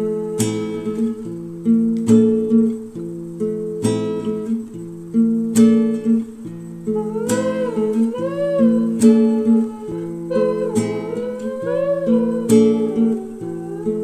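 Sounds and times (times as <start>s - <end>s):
acoustic guitar strumming: 0.0s - 14.0s
wavering melody line: 6.9s - 14.0s.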